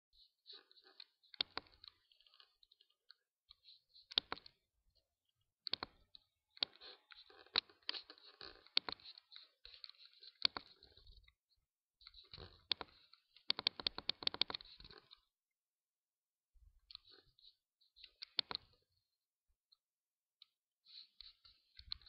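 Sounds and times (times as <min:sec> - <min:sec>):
sharp clicks and taps: 0:04.1 - 0:04.6, 0:07.5 - 0:10.7, 0:12.3 - 0:15.2.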